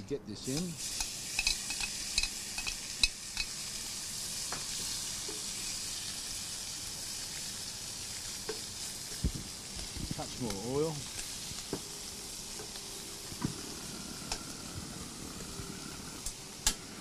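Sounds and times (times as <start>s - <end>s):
seafood sizzling in oil: 0.4s - 17.0s
metal tongs clinking on wok: 0.5s - 3.6s.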